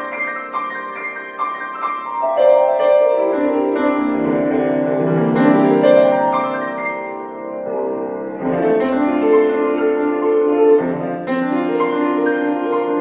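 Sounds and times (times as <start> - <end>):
classical piano music: 0.0 - 13.0.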